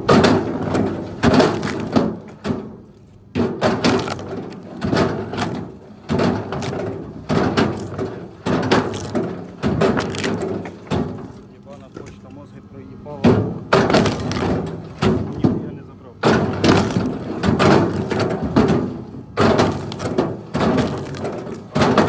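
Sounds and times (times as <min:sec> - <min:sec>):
tree branches cracking and snapping: 0:00.8 - 0:05.4, 0:06.1 - 0:12.2, 0:13.8 - 0:15.5, 0:16.4 - 0:18.3, 0:19.4 - 0:22.0.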